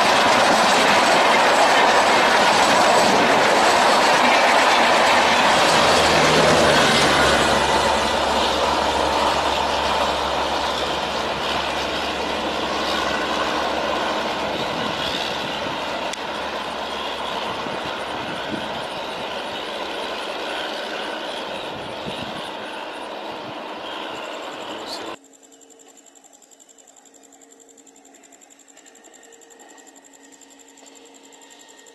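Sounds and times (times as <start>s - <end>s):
train wheels rumbling on rails: 0.0s - 25.2s.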